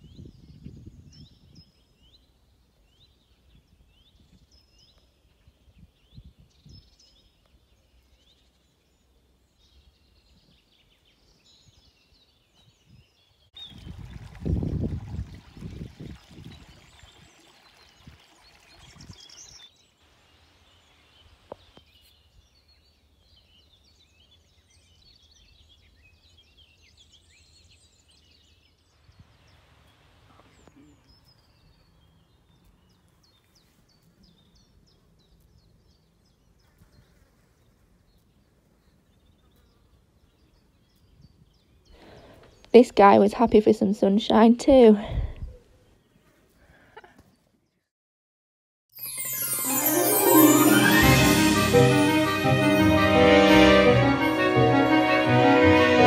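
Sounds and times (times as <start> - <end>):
small birds chirping: 0.0 - 14.2, 16.0 - 44.5.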